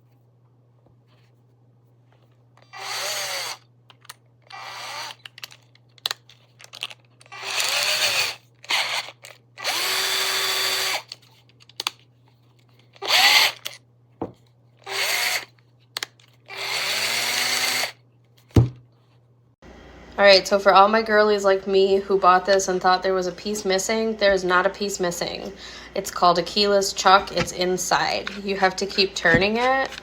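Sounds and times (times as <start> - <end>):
cordless drill motor spinning: 2.6 - 3.6, 4.4 - 5.6, 7.2 - 11.2, 13.0 - 13.8, 14.8 - 15.5, 16.5 - 18.0, 26.6 - 30.0
handling clicks: 27.0 - 30.0.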